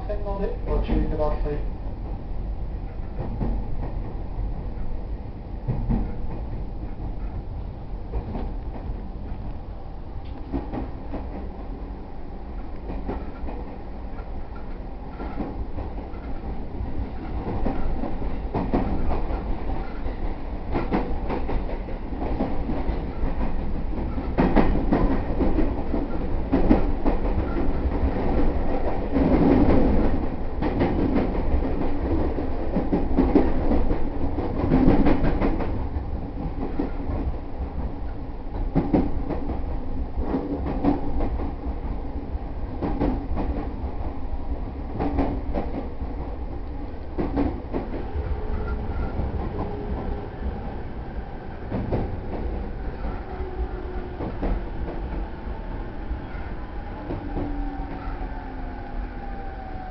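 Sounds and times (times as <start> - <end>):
train rumble: 0.0 - 59.9
train wheel clacks: 5.6 - 9.4, 10.2 - 11.5, 12.6 - 42.0, 42.8 - 44.2, 44.9 - 50.2, 51.6 - 55.3.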